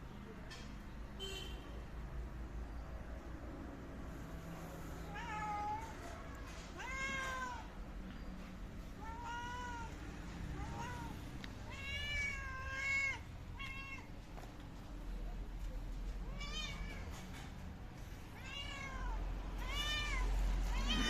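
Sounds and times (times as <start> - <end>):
cat meowing: 5.0 - 7.7, 8.9 - 14.1, 16.3 - 17.2, 18.4 - 21.0.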